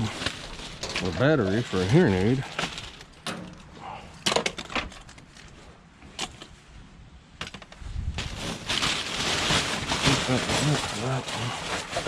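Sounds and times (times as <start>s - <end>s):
plastic bag rustling: 0.0s - 3.2s, 8.0s - 12.0s.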